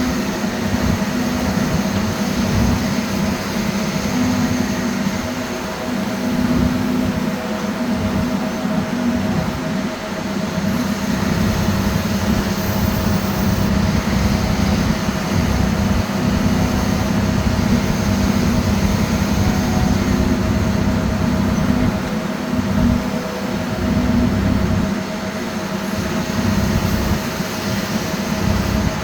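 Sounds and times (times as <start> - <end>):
diesel truck engine droning: 0.0 - 27.4.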